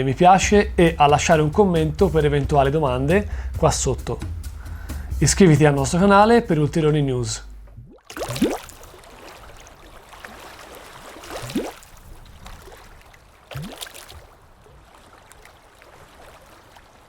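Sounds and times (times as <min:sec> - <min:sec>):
rising bubbling swoops: 0:07.8 - 0:08.9.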